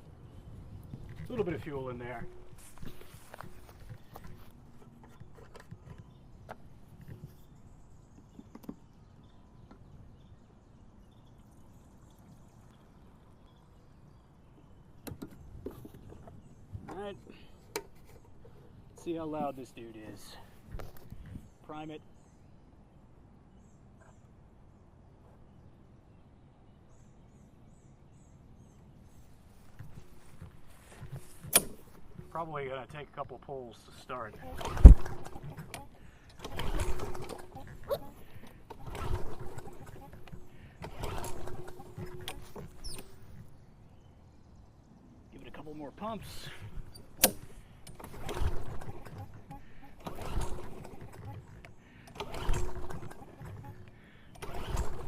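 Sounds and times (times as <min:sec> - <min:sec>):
soft rustling: 0:02.2 - 0:05.9, 0:29.1 - 0:32.4
fuel trickling into tank: 0:11.0 - 0:15.0, 0:34.4 - 0:43.2.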